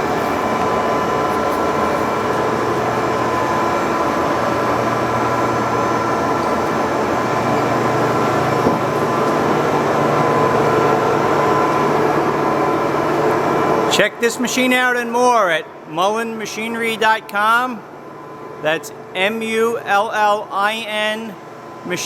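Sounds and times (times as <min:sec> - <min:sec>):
lathe mechanical drone: 0:00.0 - 0:14.8.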